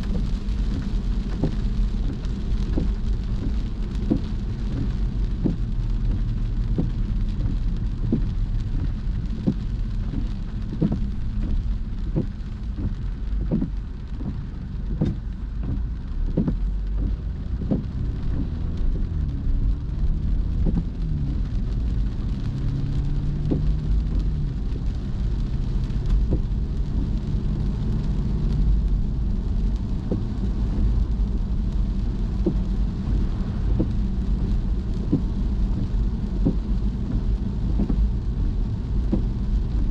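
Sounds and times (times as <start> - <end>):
rain drops ticking on a car: 0.0 - 39.9
road and engine rumble: 0.0 - 39.9.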